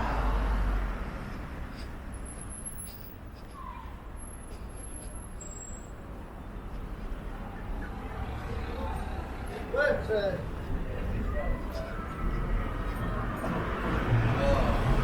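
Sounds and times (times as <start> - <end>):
distant road traffic rumble: 0.0 - 15.0
faint high-pitched chirps: 5.4 - 6.0.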